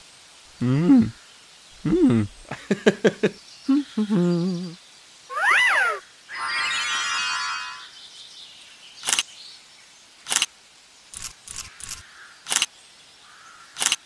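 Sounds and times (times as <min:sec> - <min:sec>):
camera shutter clicks: 0:09.0 - 0:09.3, 0:10.3 - 0:10.5, 0:11.2 - 0:12.7, 0:13.8 - 0:14.0.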